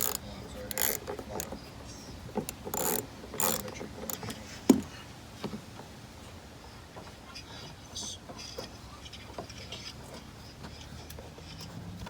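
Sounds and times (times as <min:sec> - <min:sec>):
ratchet clicking: 0:00.0 - 0:01.6, 0:02.4 - 0:04.4.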